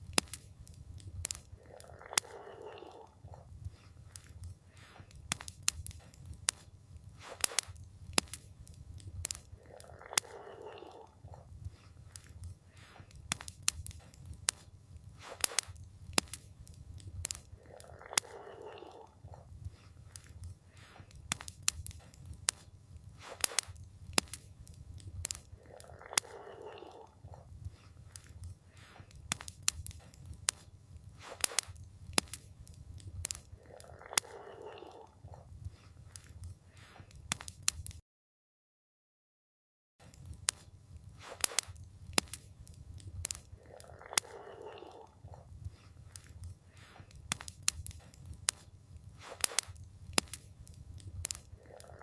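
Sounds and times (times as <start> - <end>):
campfire crackling and popping: 0.0 - 38.0, 40.0 - 52.0.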